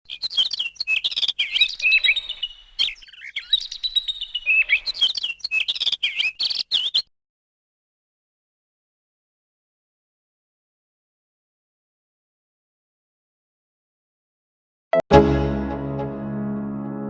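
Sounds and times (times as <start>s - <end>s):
birds chirping and twittering: 0.1s - 7.1s.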